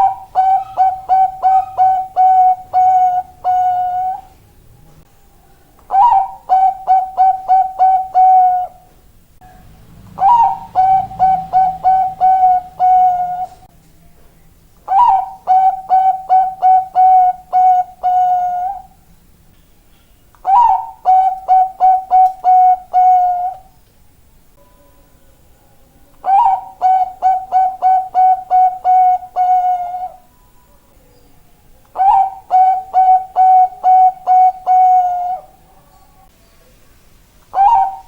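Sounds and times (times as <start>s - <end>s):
dove cooing: 0.0s - 4.4s, 5.9s - 9.0s, 10.0s - 13.7s, 14.9s - 19.0s, 20.4s - 23.7s, 26.2s - 30.3s, 31.9s - 35.8s, 37.5s - 38.0s.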